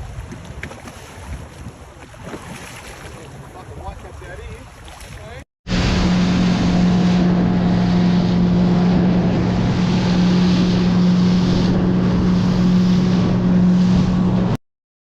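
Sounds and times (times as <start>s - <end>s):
water noise: 0.0s - 14.6s
wind: 0.0s - 14.6s
boat motor running: 5.7s - 14.6s.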